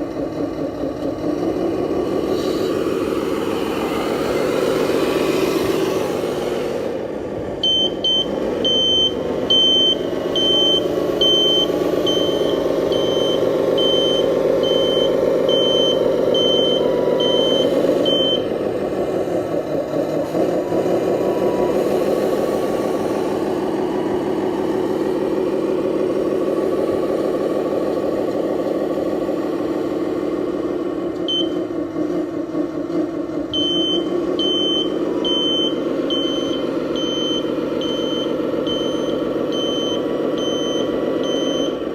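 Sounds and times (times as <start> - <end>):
high reversing beeper: 7.6 - 18.5.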